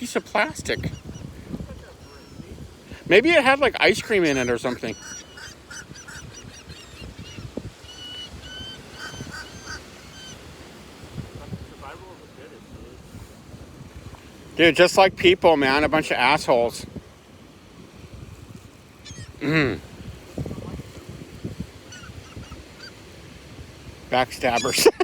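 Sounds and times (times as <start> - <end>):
birds calling: 0.0 - 11.5, 19.0 - 19.9, 21.6 - 23.3, 24.1 - 25.0.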